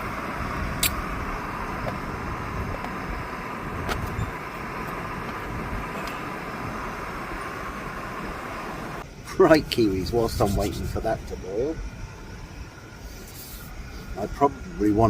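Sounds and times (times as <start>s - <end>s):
gas stove hissing roar: 0.0s - 15.0s.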